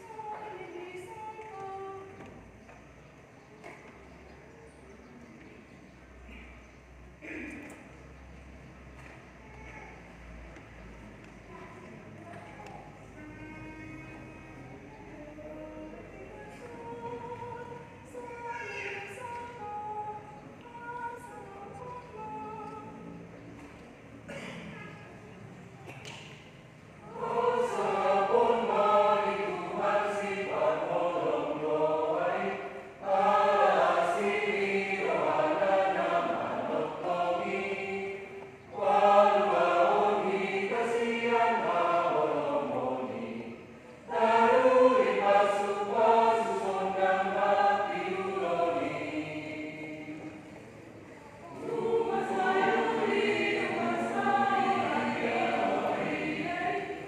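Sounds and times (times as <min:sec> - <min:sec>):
group singing in unison: 0:00.0 - 0:02.5, 0:12.9 - 0:23.7, 0:27.0 - 0:57.0.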